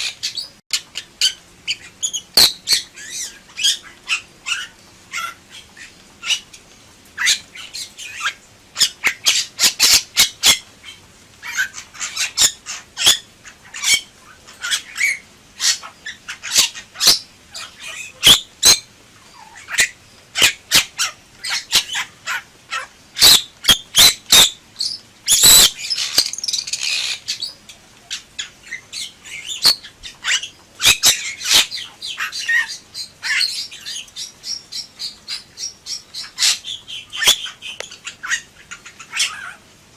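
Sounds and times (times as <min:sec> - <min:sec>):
myna squawking and whistling: 0:11.5 - 0:18.8.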